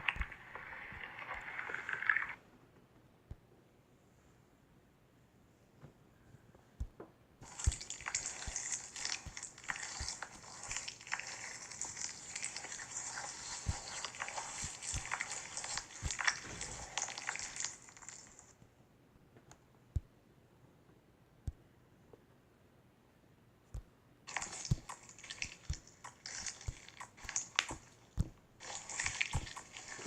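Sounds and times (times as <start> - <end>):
slime squished by hand: 6.8 - 18.6, 23.8 - 30.0.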